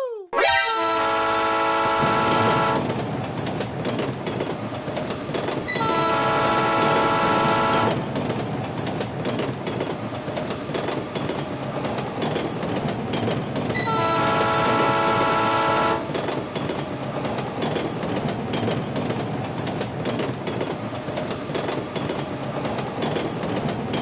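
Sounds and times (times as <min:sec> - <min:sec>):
train horn chord: 0:00.4 - 0:02.8, 0:05.7 - 0:08.0, 0:13.8 - 0:16.1
train wheels clickety-clack: 0:01.7 - 0:24.0.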